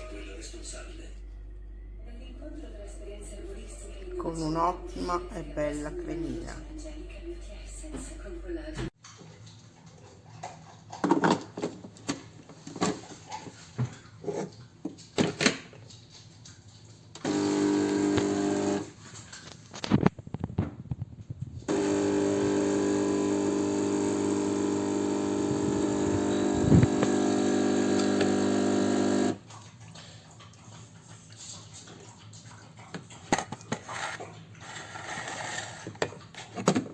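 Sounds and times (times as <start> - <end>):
espresso machine pump buzzing: 17.2 - 19.0, 21.7 - 29.4.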